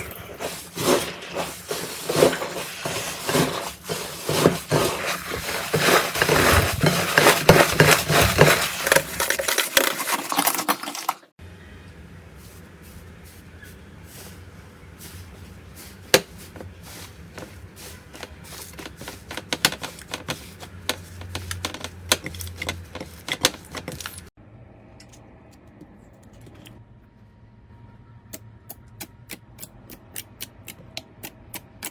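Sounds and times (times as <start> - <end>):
low steady hum: 11.4 - 29.9.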